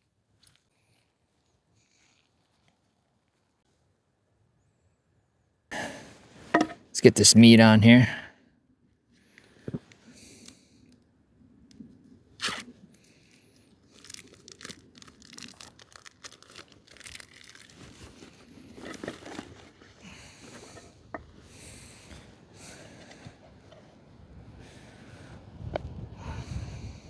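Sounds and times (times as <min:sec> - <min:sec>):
packaging tearing and crinkling: 0:13.9 - 0:19.3.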